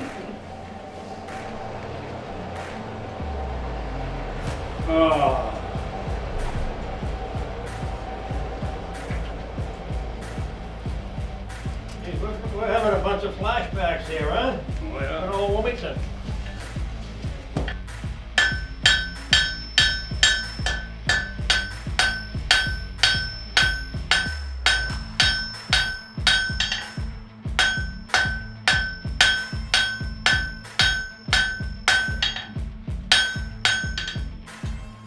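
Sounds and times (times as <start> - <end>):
low steady hum: 0.0 - 34.5
hammer striking an anvil: 17.6 - 34.9.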